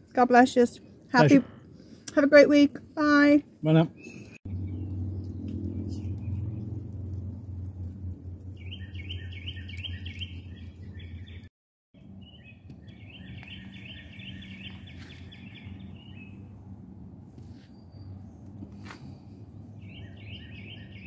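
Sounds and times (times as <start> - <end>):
low background rumble: 4.4 - 21.0
songbird trilling: 8.6 - 11.4, 12.2 - 16.3, 19.8 - 21.0.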